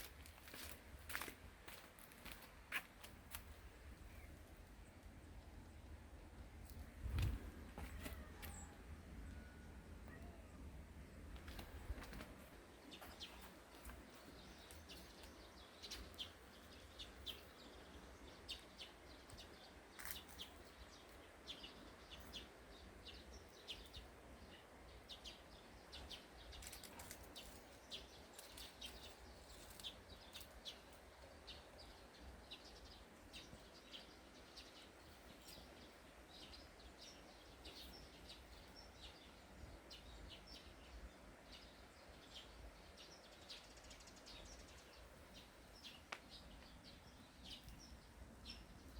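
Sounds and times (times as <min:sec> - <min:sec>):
low outdoor background noise: 0:00.0 - 0:48.9
small birds chirping: 0:00.0 - 0:48.9.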